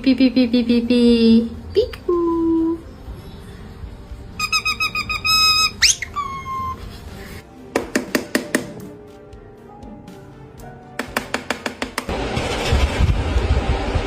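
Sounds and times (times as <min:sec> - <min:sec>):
parrot whistling: 0:04.4 - 0:06.9.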